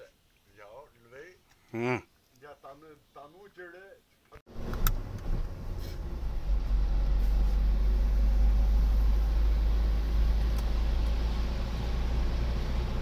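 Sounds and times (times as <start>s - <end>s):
car engine and road noise: 4.5s - 13.0s.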